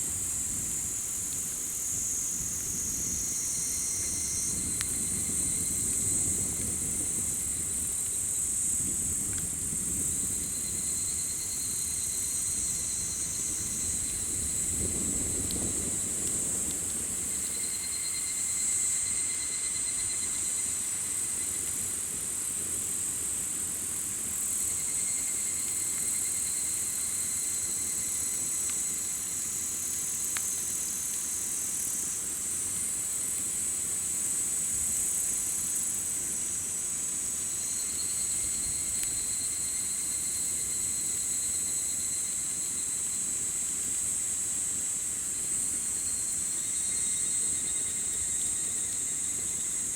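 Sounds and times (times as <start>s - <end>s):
campfire crackling: 0.0s - 49.9s
insect chorus: 0.0s - 49.9s
insect pulsing trill: 0.1s - 9.2s, 9.8s - 16.2s, 17.1s - 21.6s, 37.5s - 44.1s, 44.9s - 49.9s.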